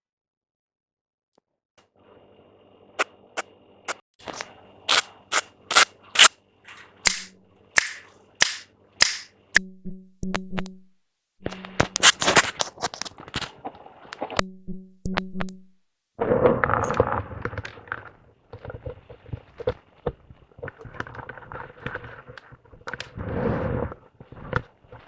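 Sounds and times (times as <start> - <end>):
sharp taps and clicks: 7.1 - 12.6, 14.4 - 16.2.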